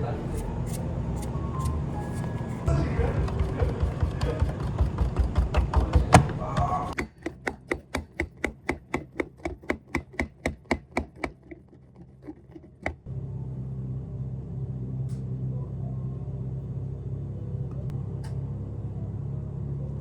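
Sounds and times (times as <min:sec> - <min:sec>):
steady low hum: 0:00.0 - 0:07.0
knife chopping on cutting board: 0:00.7 - 0:13.1
busy clatter: 0:02.2 - 0:13.1.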